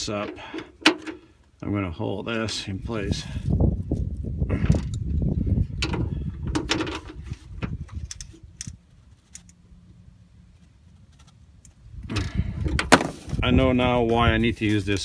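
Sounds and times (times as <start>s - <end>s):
rustling handling noise: 12.8s - 15.0s.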